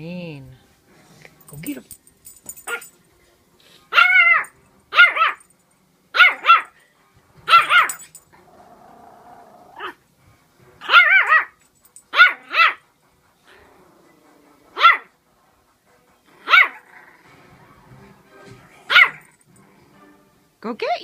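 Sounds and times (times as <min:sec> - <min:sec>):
dog barking: 0:02.6 - 0:02.9, 0:03.9 - 0:05.4, 0:06.2 - 0:06.8, 0:07.5 - 0:08.0, 0:10.8 - 0:12.8, 0:14.7 - 0:15.1, 0:16.4 - 0:16.8, 0:18.9 - 0:19.3.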